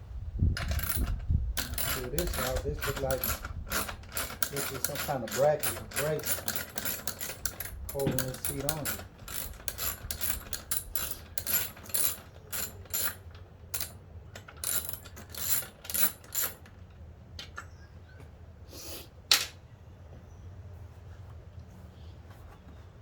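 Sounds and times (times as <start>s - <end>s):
socket ratchet clicking: 0.6s - 16.7s.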